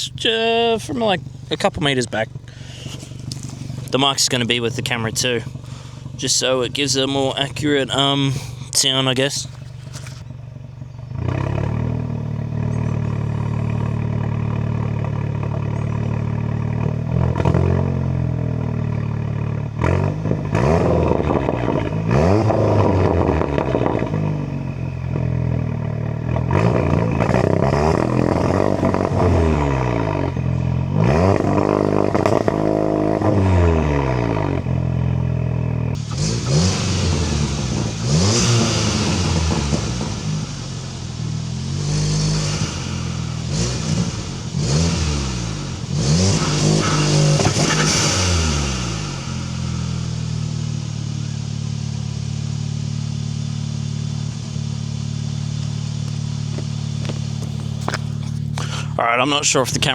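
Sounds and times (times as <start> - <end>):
car engine revving: 0.0 - 59.9
hissing rush: 42.0 - 50.2.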